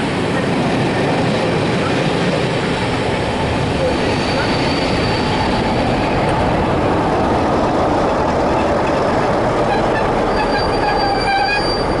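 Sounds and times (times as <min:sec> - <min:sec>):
train wheels rumbling on rail: 0:00.0 - 0:12.0
high wheel or brake squeals: 0:04.1 - 0:05.4, 0:09.7 - 0:12.0.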